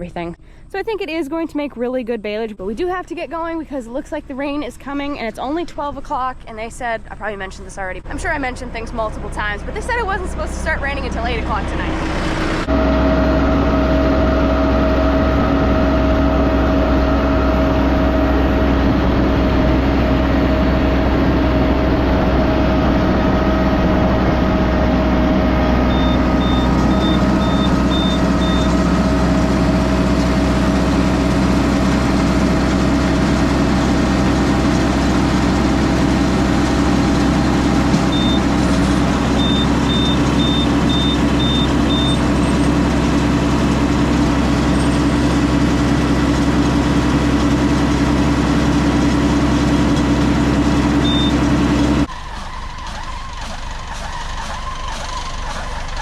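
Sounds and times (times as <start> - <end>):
tractor engine running: 2.6 - 56.0
high beeps: 25.9 - 28.8, 38.1 - 38.5, 39.4 - 42.2, 51.0 - 51.4.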